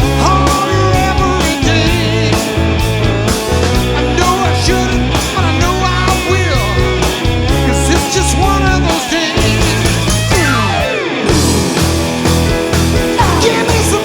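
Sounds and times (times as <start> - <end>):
lead guitar bending notes: 0.0 - 14.0
rock band instrumental: 0.0 - 14.0.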